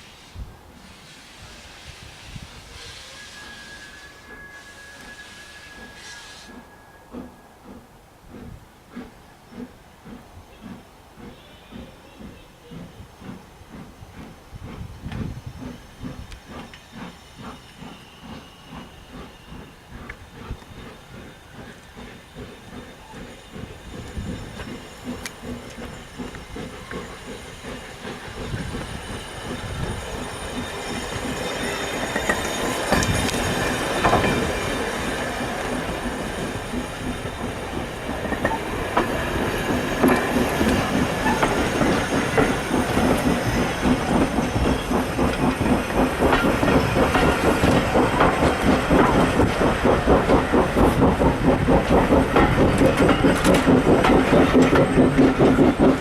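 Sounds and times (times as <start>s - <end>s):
steam train running: 0.0s - 56.0s.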